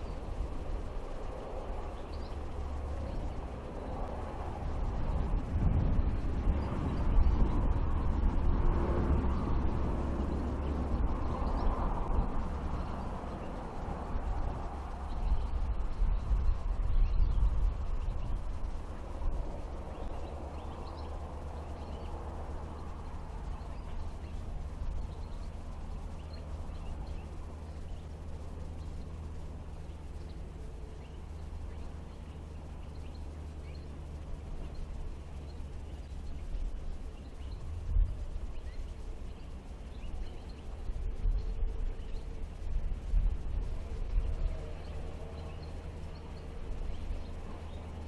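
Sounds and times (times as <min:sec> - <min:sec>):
steady low rumble: 0:00.0 - 0:48.0
faint bird chirps: 0:14.9 - 0:42.6.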